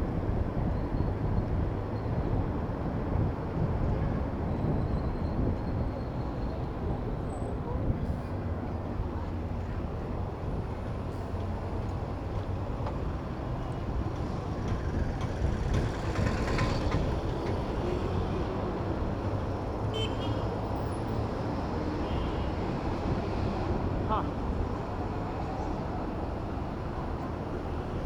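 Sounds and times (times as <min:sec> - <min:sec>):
wind rumble on microphone: 0:00.0 - 0:19.8
traffic engines and tyres rumbling: 0:00.0 - 0:28.0.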